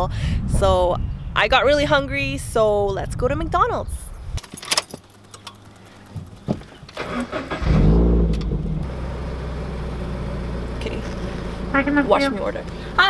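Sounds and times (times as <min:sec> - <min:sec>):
small clicks: 0:04.4 - 0:07.0
car engine starting and idling: 0:05.0 - 0:13.0.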